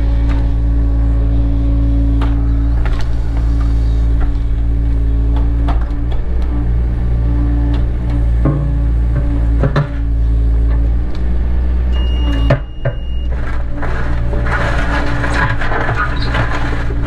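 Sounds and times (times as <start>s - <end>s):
diesel engine running: 0.0s - 17.0s
crunching and scraping: 12.9s - 17.0s.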